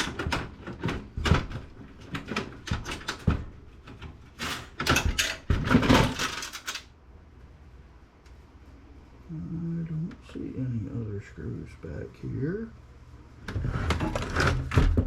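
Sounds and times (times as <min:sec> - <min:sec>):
computer parts clattering: 0:00.0 - 0:06.9.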